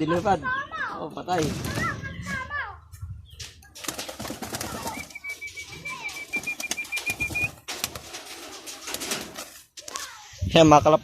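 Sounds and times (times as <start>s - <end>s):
pigeon wing flaps: 3.7s - 9.7s.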